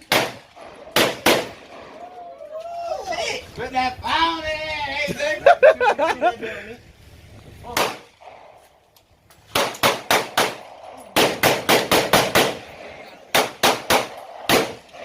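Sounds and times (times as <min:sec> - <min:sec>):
rapid gunshots: 0:00.0 - 0:01.8, 0:09.5 - 0:15.0.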